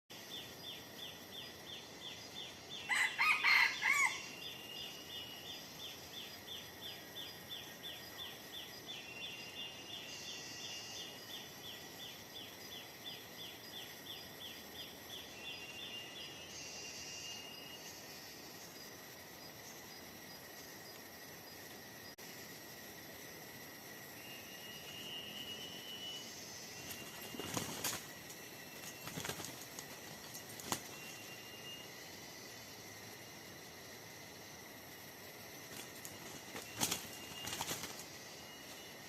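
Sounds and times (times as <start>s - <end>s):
insects chirping: 0.1s - 39.0s
high insect buzzes: 0.2s - 39.0s
rooster crowing: 2.9s - 4.4s.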